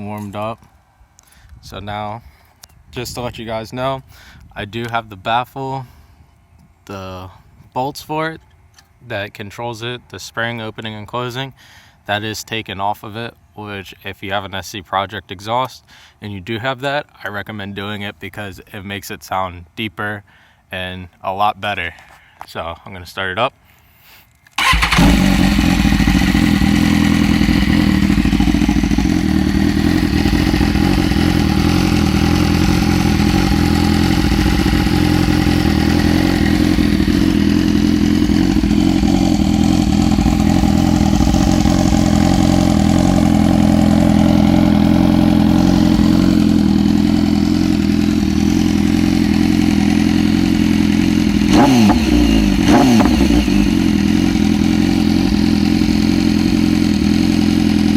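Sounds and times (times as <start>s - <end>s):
engine throttle blips: 24.6s - 57.2s
motorcycle engine starting and idling: 24.6s - 57.9s.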